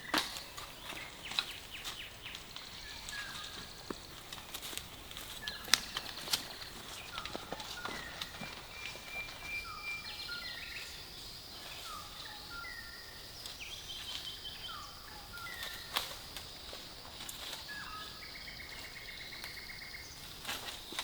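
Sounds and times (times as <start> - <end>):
birds whistling and trilling: 0.0 - 4.4, 5.2 - 16.2, 17.4 - 21.0.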